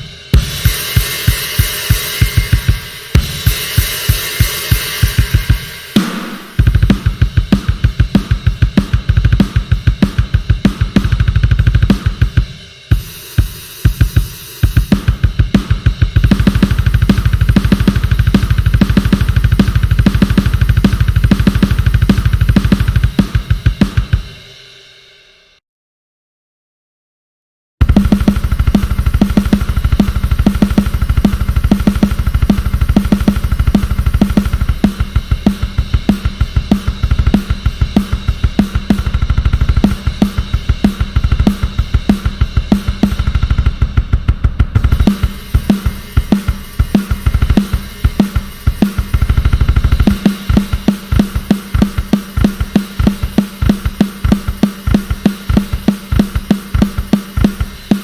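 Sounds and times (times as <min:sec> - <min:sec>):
snare drum: 0:00.0 - 0:24.4, 0:27.8 - 0:58.0
kick drum: 0:06.5 - 0:24.4, 0:27.8 - 0:58.0
hi-hat: 0:44.8 - 0:58.0.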